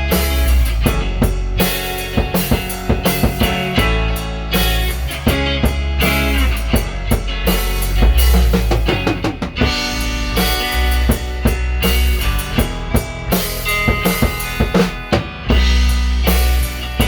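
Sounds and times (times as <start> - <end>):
bass drum and snare beat: 0.0 - 17.0
pitched instruments: 7.5 - 14.9.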